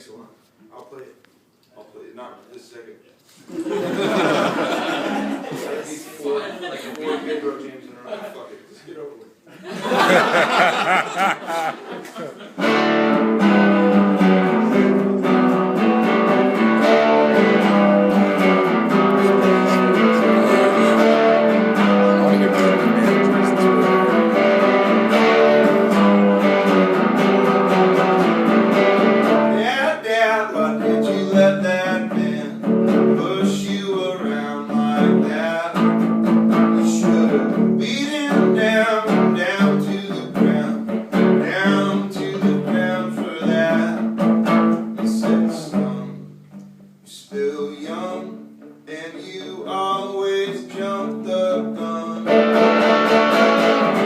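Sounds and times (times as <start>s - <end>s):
guitar strummed and picked: 12.6s - 47.0s, 47.8s - 54.0s
man singing: 16.5s - 28.1s, 29.2s - 46.4s, 47.1s - 54.0s.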